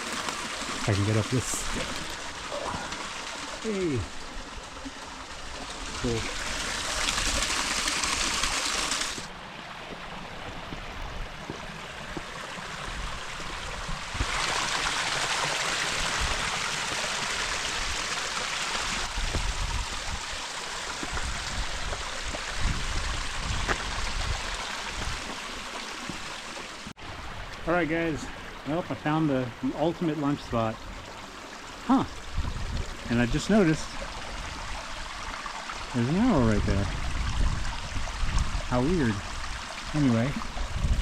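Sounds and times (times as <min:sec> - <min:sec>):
waterfalls splashing into stream: 0:00.0 - 0:09.3, 0:09.9 - 0:27.8.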